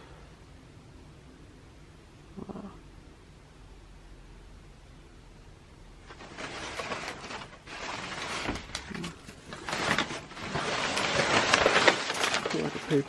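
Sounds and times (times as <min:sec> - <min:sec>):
packaging crinkling and rustling: 0:06.0 - 0:13.0.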